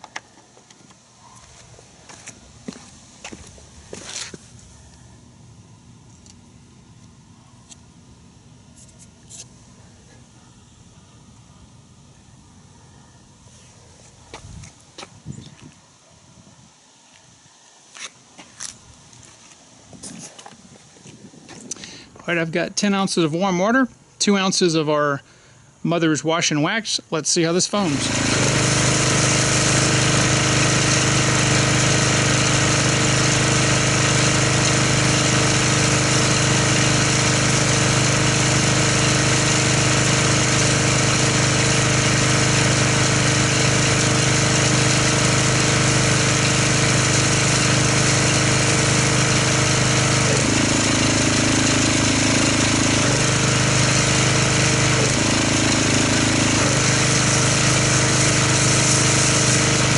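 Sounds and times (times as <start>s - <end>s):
pressure washer pump hum: 0.0s - 15.6s, 26.4s - 59.9s
hiss of spray: 58.2s - 59.6s.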